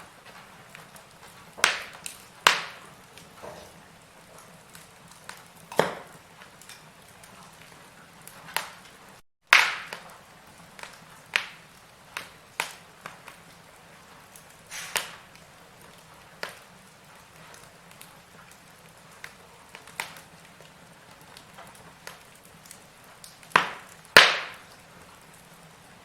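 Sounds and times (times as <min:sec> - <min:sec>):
firewood crackling and popping: 0:00.0 - 0:26.0
faint hiss: 0:12.2 - 0:15.6.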